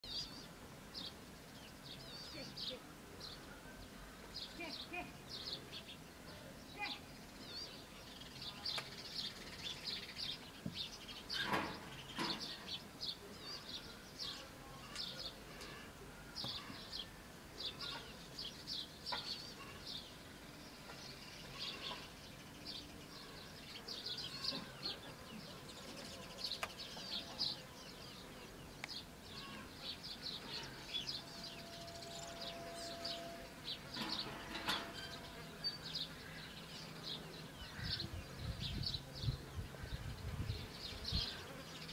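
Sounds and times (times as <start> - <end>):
birds chirping: 0.0 - 41.9
rustle or knock: 10.6 - 12.8.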